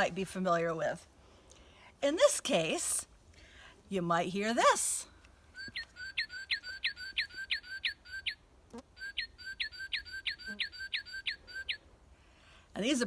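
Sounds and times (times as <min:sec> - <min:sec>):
bird singing clear whistles: 0:05.6 - 0:08.4, 0:09.0 - 0:11.8.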